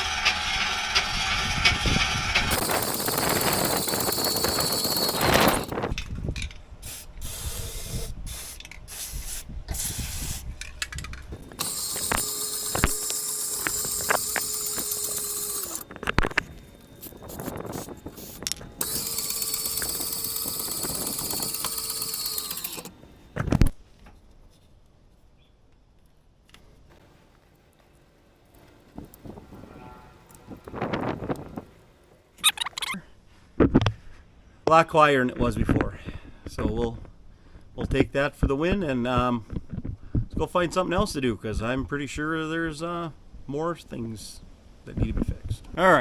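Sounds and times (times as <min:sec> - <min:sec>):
motor humming and whining: 0:00.0 - 0:05.9, 0:11.3 - 0:23.0
mechanical clicks: 0:18.8 - 0:22.9.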